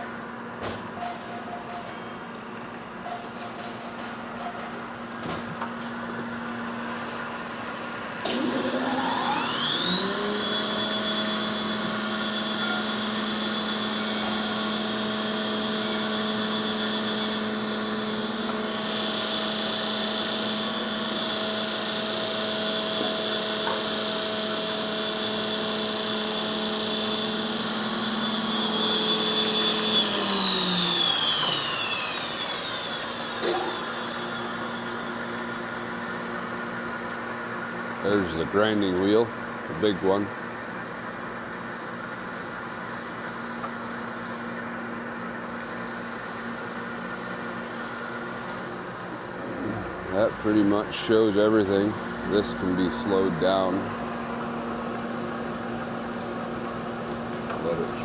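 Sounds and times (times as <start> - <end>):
motor humming: 7.4 - 37.0, 47.3 - 58.0
grinding wheel motor whining: 8.2 - 36.6, 47.5 - 58.0.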